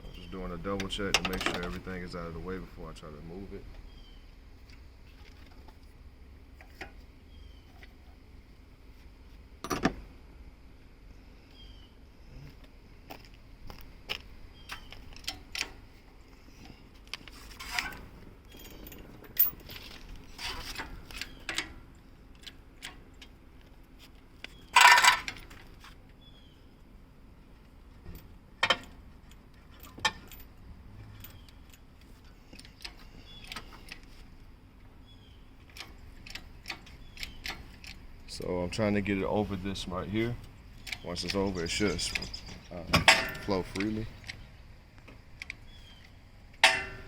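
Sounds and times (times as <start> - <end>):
faint steady hum: 0.0 - 47.0
clattering metal scrape: 17.3 - 21.4
metallic clinks and knocks: 17.6 - 21.7, 46.6 - 47.0.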